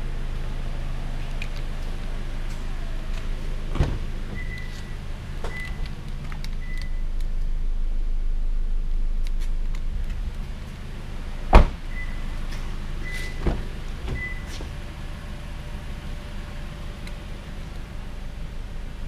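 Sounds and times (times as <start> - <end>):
low rumble: 0.0 - 19.0
car door shutting: 3.7 - 6.0, 11.5 - 14.8.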